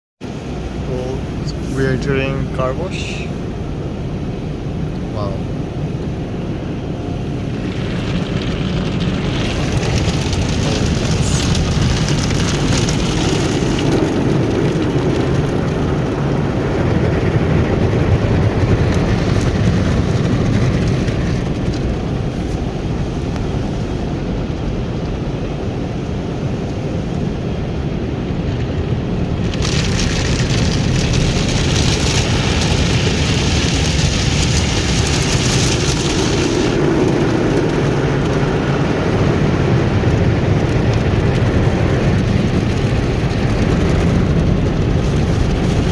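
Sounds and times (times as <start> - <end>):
car wash machinery: 0.2 - 45.9
car wash water spray: 4.7 - 24.1, 29.2 - 45.9.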